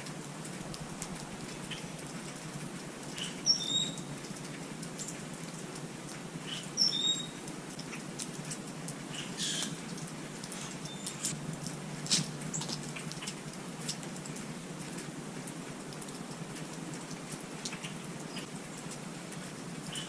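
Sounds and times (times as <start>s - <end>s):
faint ticking and patter: 0.0s - 6.8s, 7.4s - 20.0s
small birds chirping: 1.1s - 2.2s, 3.2s - 4.1s, 6.4s - 7.4s, 9.1s - 11.4s.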